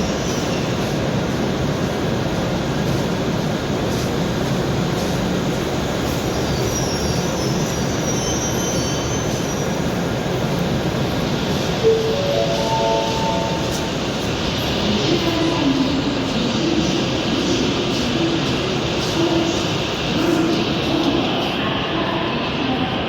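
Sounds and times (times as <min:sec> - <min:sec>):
train rumbling on rails: 0:00.0 - 0:23.0
faint high wheel squeal: 0:06.3 - 0:09.9.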